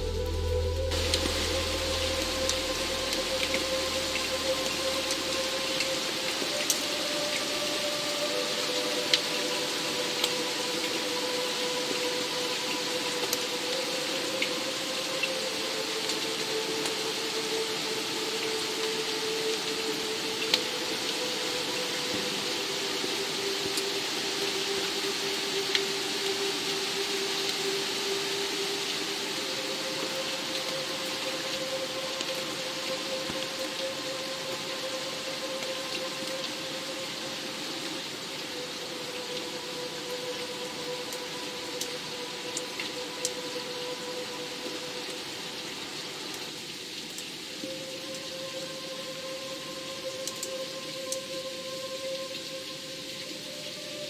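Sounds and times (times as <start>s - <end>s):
low bass note: 0.0s - 4.8s
sharper raindrops ticking: 0.0s - 29.2s, 46.3s - 52.5s
ambient music pad: 0.0s - 54.0s
steady rain hissing: 0.0s - 54.0s.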